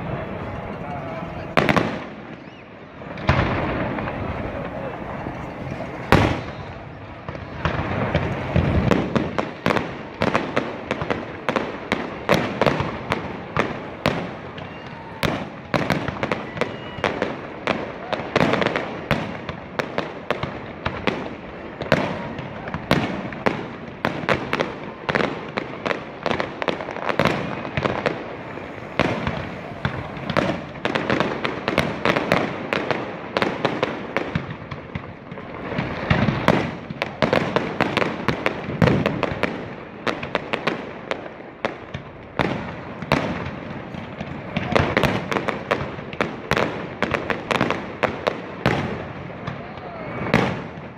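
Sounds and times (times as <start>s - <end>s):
steady rumbling haze: 0.0s - 16.2s, 25.7s - 33.3s
fireworks bangs: 0.0s - 50.9s.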